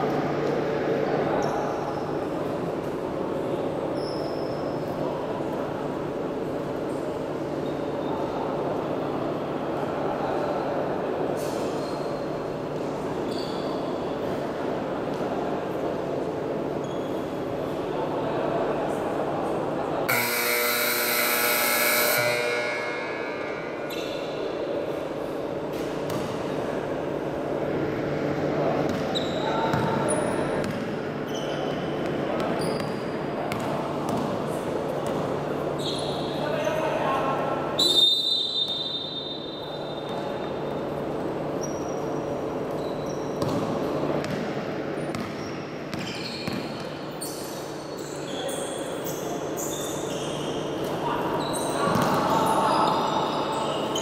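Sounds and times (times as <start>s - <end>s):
murmur of crowd voices: 0.0s - 54.0s
shoes squeaking on court: 13.3s - 13.9s, 16.8s - 17.4s, 28.8s - 34.4s, 41.5s - 44.4s, 45.0s - 54.0s
basketball court noise: 20.0s - 36.4s, 37.8s - 47.7s, 50.1s - 54.0s
electric game buzzer: 20.1s - 23.7s
ball bouncing on court: 25.7s - 26.4s, 28.9s - 31.0s, 31.7s - 35.3s, 43.4s - 47.0s, 51.8s - 52.5s.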